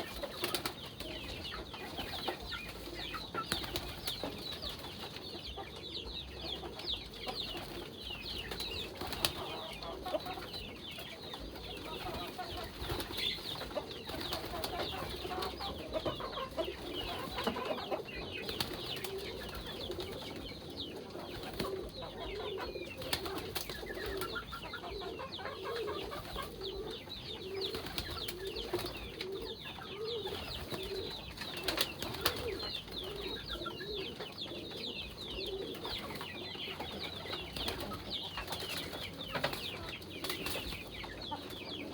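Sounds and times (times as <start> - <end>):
pigeons cooing: 0.0 - 41.9
wing flapping: 23.0 - 24.4, 30.4 - 33.2.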